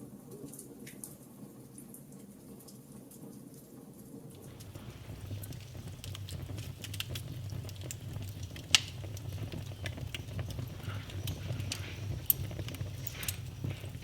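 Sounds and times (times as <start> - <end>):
low rumble of fire: 4.3 - 14.0
wood fire crackling: 4.3 - 14.0.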